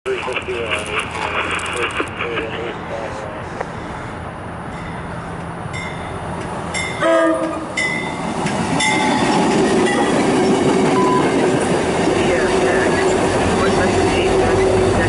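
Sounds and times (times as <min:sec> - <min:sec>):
train rumble and wheel noise: 0:00.1 - 0:15.0
high ringing notes: 0:04.7 - 0:09.3
train horn blast: 0:07.0 - 0:07.8.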